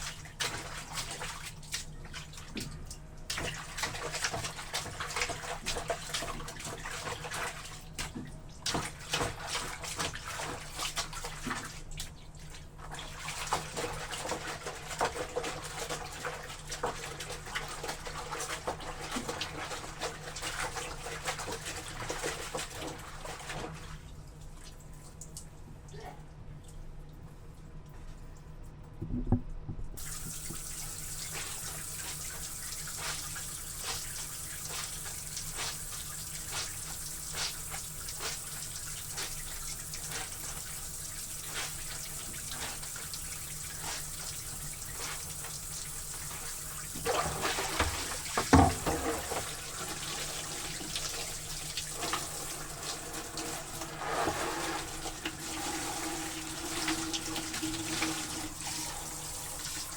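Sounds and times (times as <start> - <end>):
water running from a tap: 0.0 - 23.7, 30.0 - 59.9.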